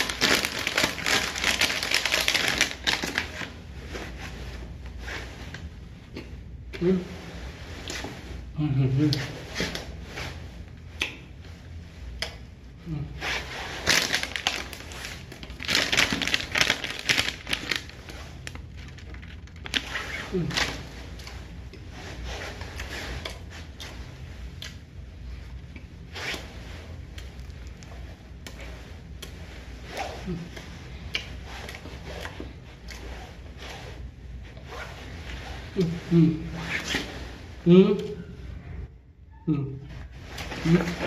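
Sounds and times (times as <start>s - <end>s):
person humming: 35.8s - 36.6s, 37.6s - 38.4s.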